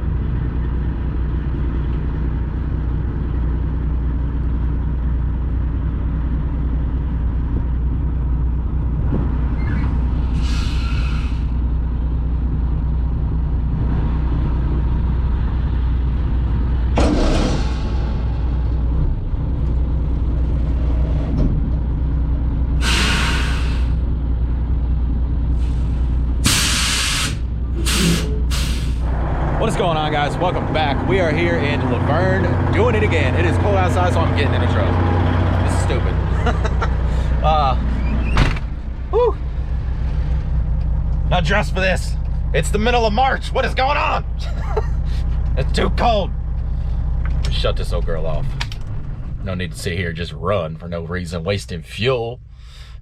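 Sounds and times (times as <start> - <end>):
truck diesel engine droning: 0.0 - 53.0
air hiss bursts: 22.8 - 24.0, 26.4 - 29.0.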